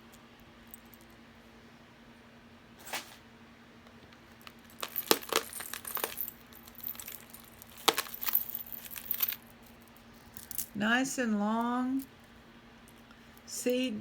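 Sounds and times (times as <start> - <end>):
jewelry clinking and jangling: 0.6 - 1.2, 4.3 - 10.8.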